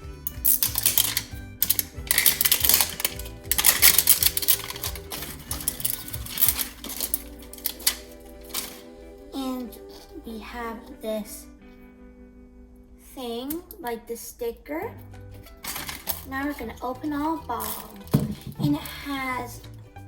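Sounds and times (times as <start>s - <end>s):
background music with steady beat: 0.0s - 13.8s, 14.7s - 20.0s
toy packaging crinkling: 0.3s - 8.9s, 15.4s - 19.7s.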